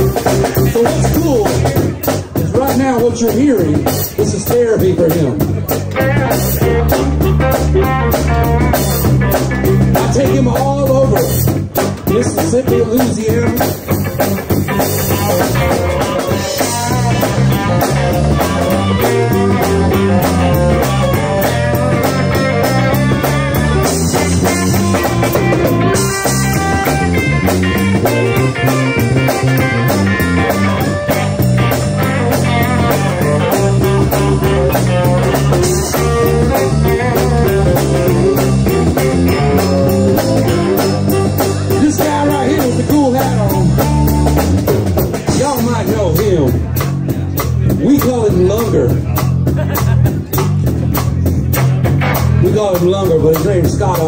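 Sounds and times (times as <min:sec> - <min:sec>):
bass guitar: 0:00.0 - 0:54.0
drum kit beat: 0:00.0 - 0:54.0
electric guitar: 0:00.0 - 0:54.0.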